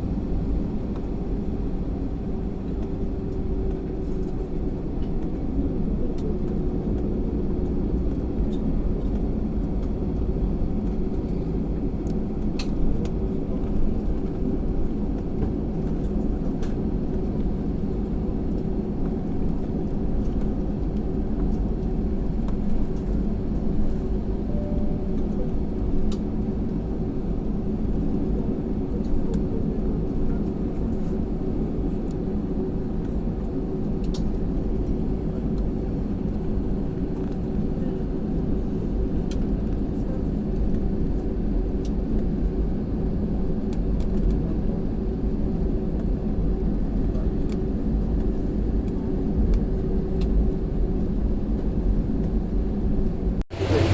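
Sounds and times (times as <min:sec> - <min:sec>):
tractor engine running: 0:53.5 - 0:53.9.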